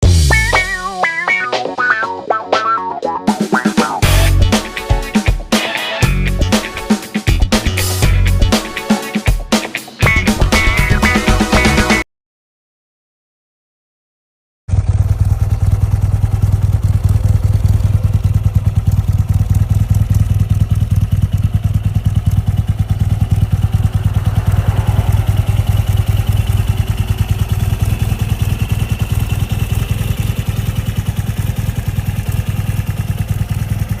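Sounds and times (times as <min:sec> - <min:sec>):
motorcycle engine running: 0:00.0 - 0:01.0, 0:03.8 - 0:05.4, 0:14.7 - 0:34.0.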